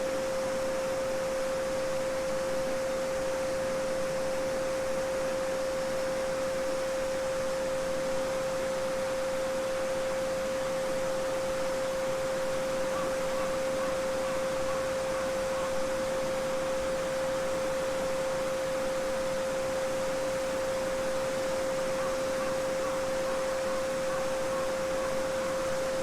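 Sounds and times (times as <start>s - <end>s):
steady sine tone: 0.0s - 26.0s
babbling brook: 12.8s - 15.9s.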